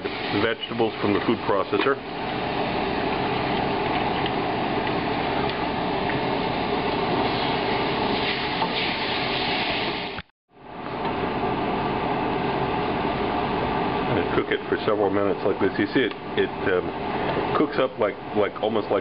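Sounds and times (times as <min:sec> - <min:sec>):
vegetables sizzling in a pot: 0:05.0 - 0:10.2.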